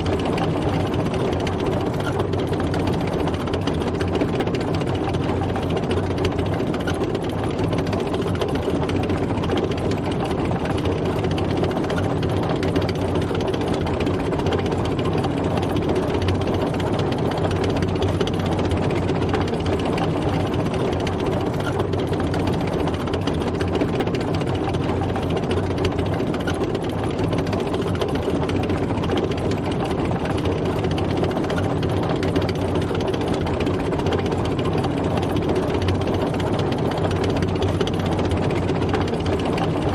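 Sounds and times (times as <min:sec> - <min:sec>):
tank engine droning: 0:00.0 - 0:39.9.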